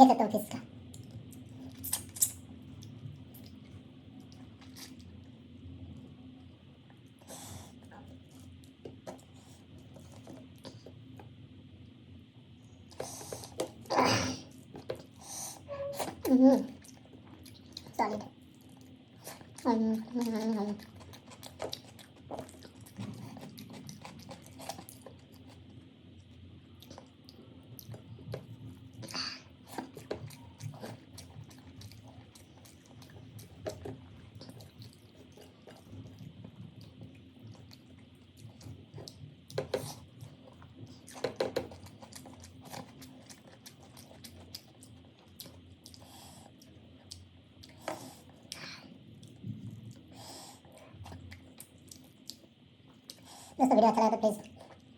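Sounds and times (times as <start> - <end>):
person chewing food: 16.8 - 53.5.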